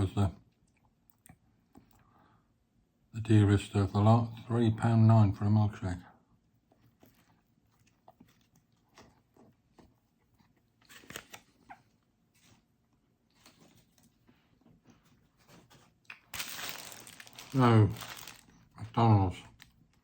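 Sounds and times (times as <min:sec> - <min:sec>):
man chewing and crunching food: 0:00.4 - 0:02.4, 0:06.3 - 0:18.8.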